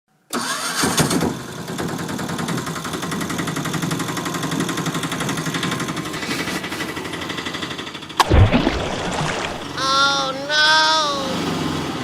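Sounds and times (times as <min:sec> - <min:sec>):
small engine puttering: 0:00.3 - 0:08.2.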